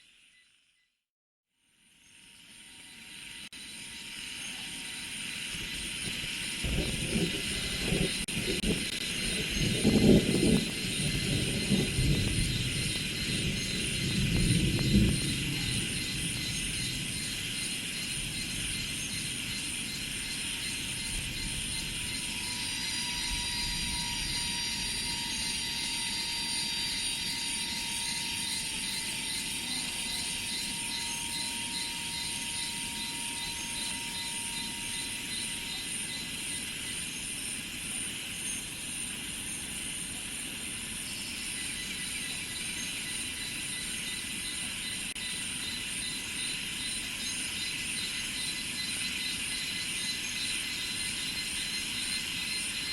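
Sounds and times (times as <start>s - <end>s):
insects trilling: 1.8s - 52.9s
thin high tone: 22.2s - 37.2s.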